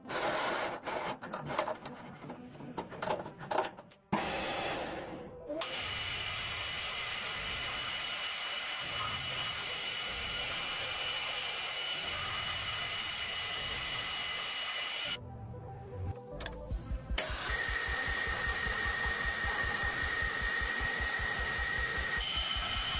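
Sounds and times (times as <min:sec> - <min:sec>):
metal lathe cutting: 0:05.6 - 0:15.2, 0:17.2 - 0:22.9.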